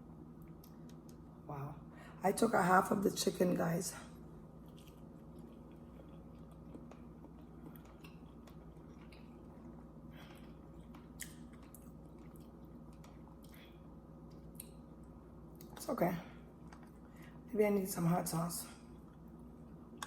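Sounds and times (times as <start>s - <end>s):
low electrical hum: 0.0s - 20.0s
faint chewing: 4.6s - 15.9s, 16.5s - 17.4s.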